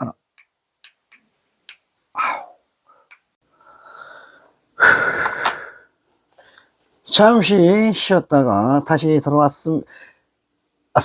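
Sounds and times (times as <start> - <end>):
man breathing hard: 3.5 - 6.7.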